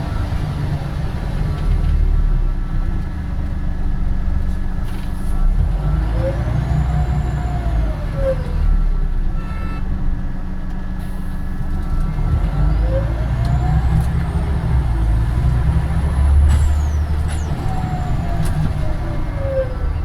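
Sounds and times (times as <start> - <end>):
bus engine rumble: 0.0 - 20.0.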